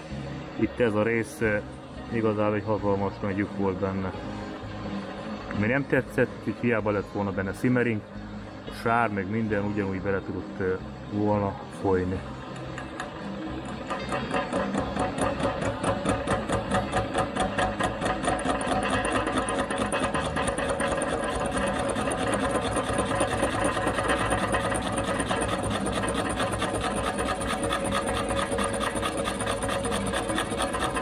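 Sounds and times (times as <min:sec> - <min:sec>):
boring bar drive running: 0:08.7 - 0:31.0
metallic scraping of cutter: 0:12.4 - 0:31.0.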